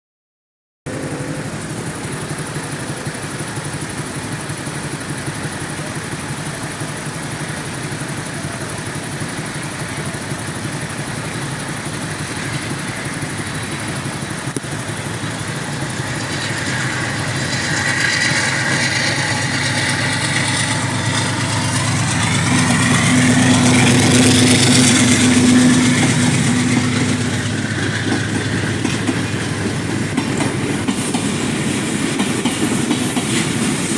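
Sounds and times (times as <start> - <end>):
train approaching: 0.9 - 33.9
vehicle engines idling: 0.9 - 33.9.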